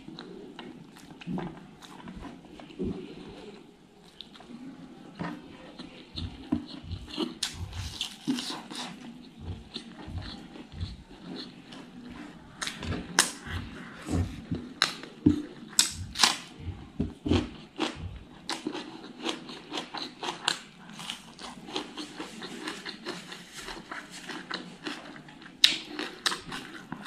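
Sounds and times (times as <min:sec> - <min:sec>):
wet chewing and lip smacks: 0:05.7 - 0:13.6.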